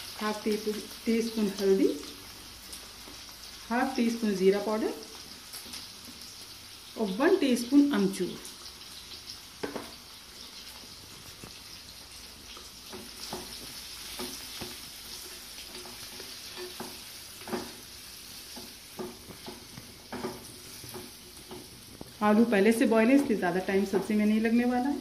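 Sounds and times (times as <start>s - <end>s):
potatoes sizzling in hot oil: 0.0s - 25.0s
spatula scraping and tapping pan: 9.6s - 10.0s, 12.5s - 22.2s, 23.2s - 24.3s.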